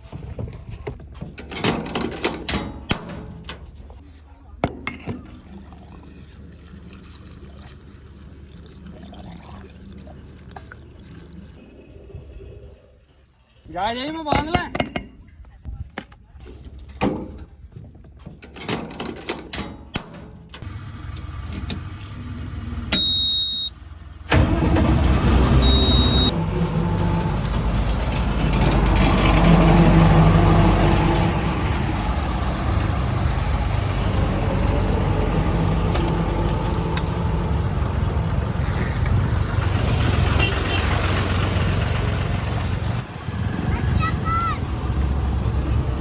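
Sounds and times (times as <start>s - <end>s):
diesel engine starting and running: 0.0s - 4.0s, 18.4s - 46.0s
loud high beep: 22.9s - 23.7s, 25.6s - 26.3s.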